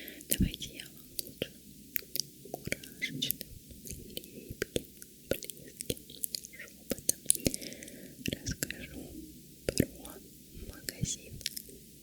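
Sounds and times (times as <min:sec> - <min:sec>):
close-up whispering: 0:00.0 - 0:01.6, 0:02.6 - 0:11.7
wet mouth clicks and smacks: 0:03.8 - 0:07.6, 0:09.7 - 0:09.9.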